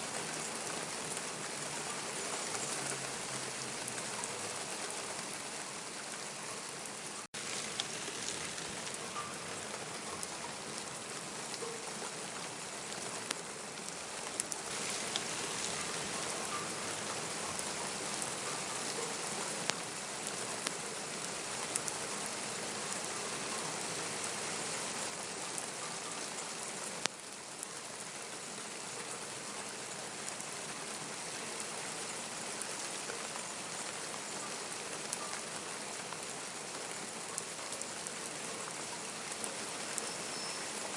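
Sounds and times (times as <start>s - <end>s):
sharper raindrops: 0.0s - 40.9s
steady rain: 0.0s - 40.9s.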